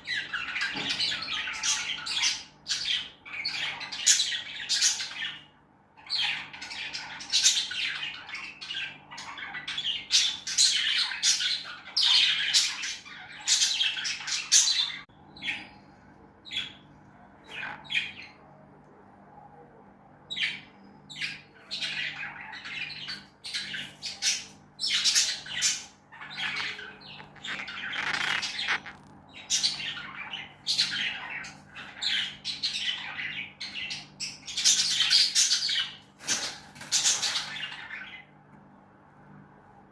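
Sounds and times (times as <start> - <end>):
lovebirds squawking and chirping: 0.0 - 18.4, 20.3 - 38.4
faint low hum: 0.0 - 39.9.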